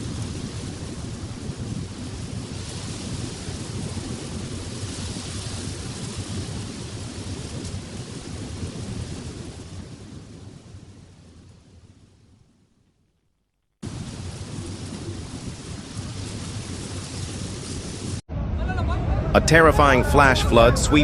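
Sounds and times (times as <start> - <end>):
wind rushing: 0.0 - 12.5, 13.8 - 21.0
torrential rain: 0.0 - 18.3.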